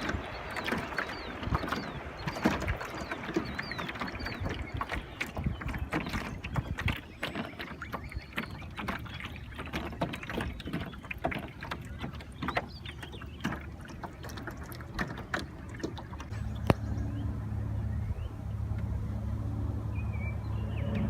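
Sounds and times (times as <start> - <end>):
gear clicking and knocking in boat: 0.0 - 16.8
light water splashes: 0.0 - 17.3
low rumble: 16.2 - 21.0.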